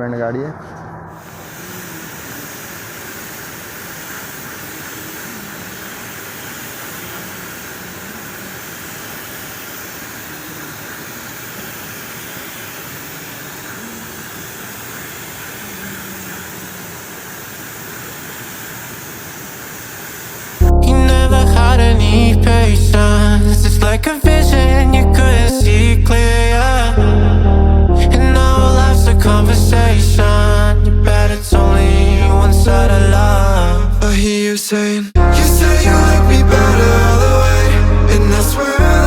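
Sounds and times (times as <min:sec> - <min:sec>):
spray gun air hiss: 0:01.2 - 0:20.6.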